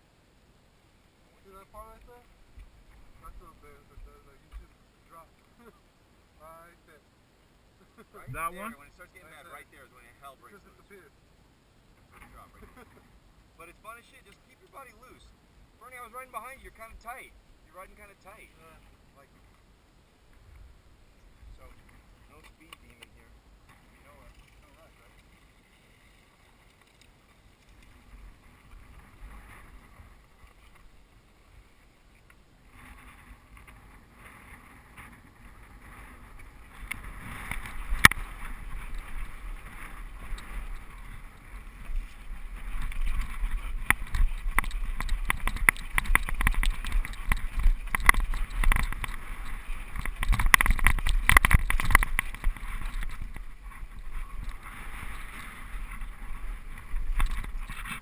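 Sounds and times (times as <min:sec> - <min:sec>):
wind on microphone: 0:32.6 - 0:58.0
tyres rolling over dirt: 0:32.7 - 0:58.0
bike knocking and rattling: 0:33.1 - 0:58.0.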